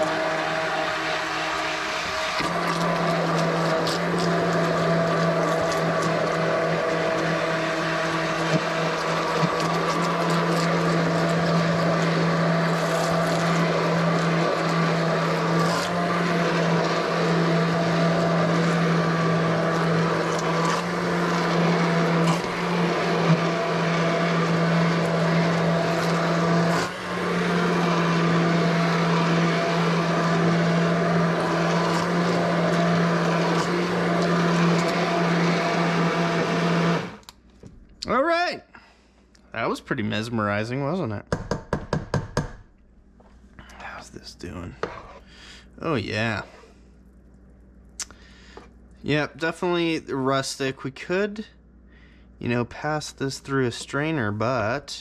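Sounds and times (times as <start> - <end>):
immersion blender motor running: 0.0 - 37.3.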